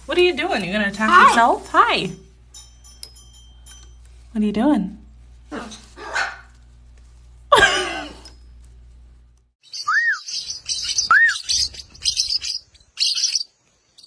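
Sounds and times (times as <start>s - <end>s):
pet birds calling: 9.6s - 14.0s
high twittering chatter: 9.7s - 13.5s
rising and falling whistles: 9.7s - 13.5s.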